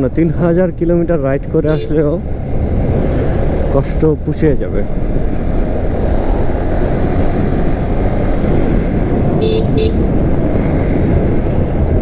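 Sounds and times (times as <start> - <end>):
motorcycle road and wind noise: 0.0 - 12.0
vehicle horn toots: 1.7 - 2.1, 9.4 - 10.1.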